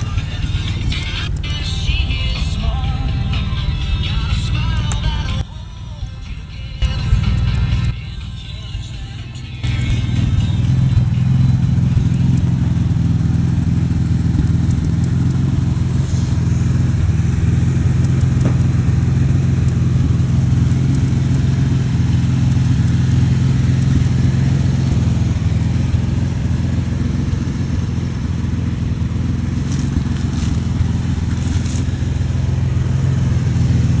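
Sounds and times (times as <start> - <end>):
engine running steadily: 0.0 - 34.0.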